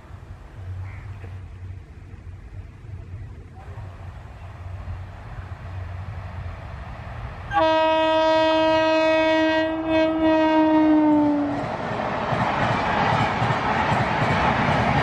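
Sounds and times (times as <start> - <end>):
train rumbling: 0.0 - 15.0
train horn blast: 7.5 - 11.6.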